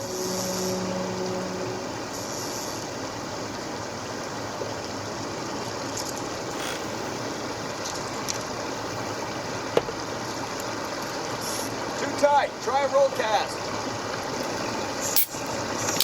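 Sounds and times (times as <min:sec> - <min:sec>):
low hum: 0:00.0 - 0:02.9
river flowing: 0:00.0 - 0:15.9.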